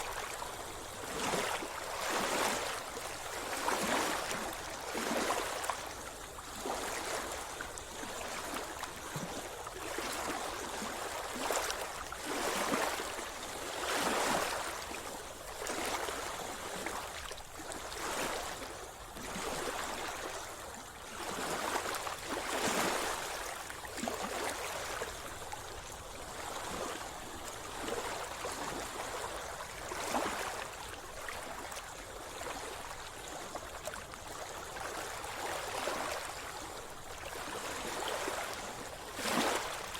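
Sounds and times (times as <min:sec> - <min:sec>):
sea water splashing: 0:33.8 - 0:39.9.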